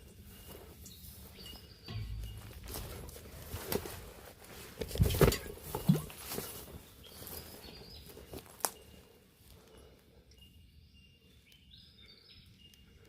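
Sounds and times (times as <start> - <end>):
low rumble: 1.9 - 4.5.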